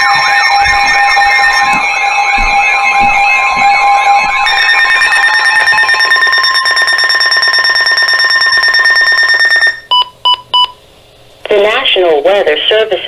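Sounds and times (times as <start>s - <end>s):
buzzy emergency alert tone: 0.0s - 9.9s.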